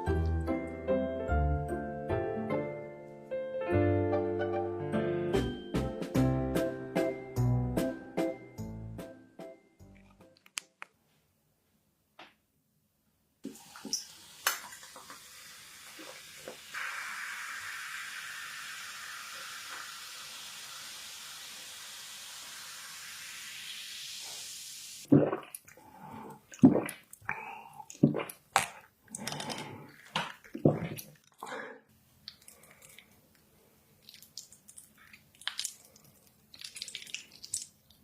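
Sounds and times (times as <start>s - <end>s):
clicks: 10.0s - 11.0s
steady hiss: 13.5s - 25.1s.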